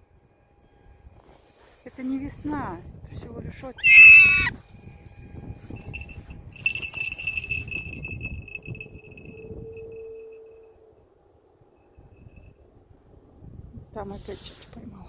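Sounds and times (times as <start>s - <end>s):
small metal bell ringing: 5.7s - 10.8s.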